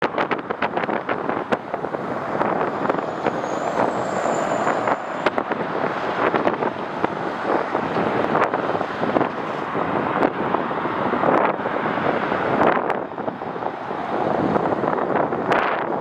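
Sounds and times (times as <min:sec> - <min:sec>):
wind buffeting microphone: 0:00.0 - 0:16.0
faint high whine: 0:02.4 - 0:06.1.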